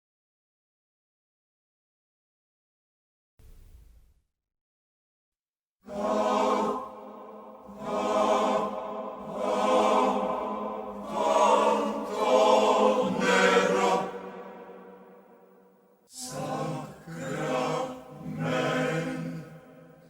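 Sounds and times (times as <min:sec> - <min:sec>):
choir singing: 0:05.9 - 0:20.0.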